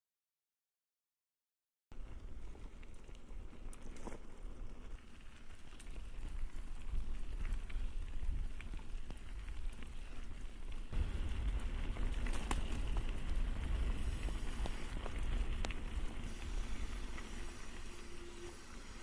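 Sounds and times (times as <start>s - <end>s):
bike clicks and rattles: 2.0s - 17.8s
tyres crunching on gravel: 2.0s - 19.0s
wind rumble on microphone: 4.6s - 19.0s.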